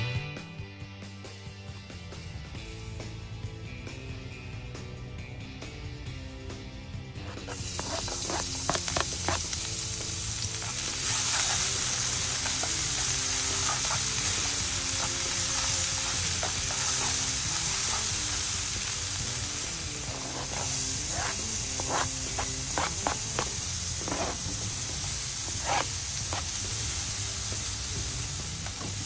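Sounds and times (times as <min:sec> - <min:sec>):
garlic sizzling in oil: 0:07.3 - 0:29.0.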